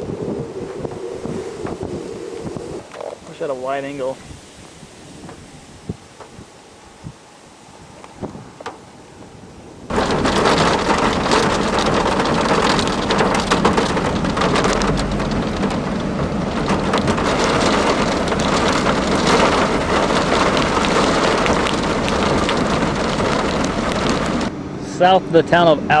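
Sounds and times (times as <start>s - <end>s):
heavy rain: 9.8s - 24.5s.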